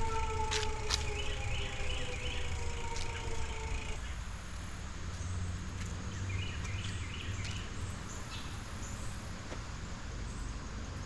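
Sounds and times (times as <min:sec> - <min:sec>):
birds chirping: 0:00.0 - 0:04.2
insects buzzing faintly: 0:00.0 - 0:05.2
bike riding rumble: 0:00.0 - 0:11.0.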